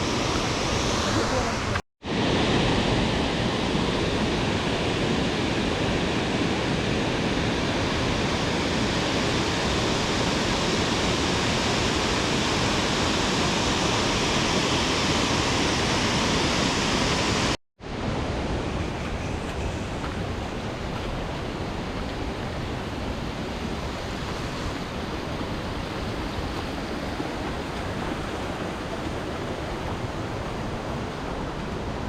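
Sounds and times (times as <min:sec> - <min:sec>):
waterfall roaring: 0:09.0 - 0:32.0.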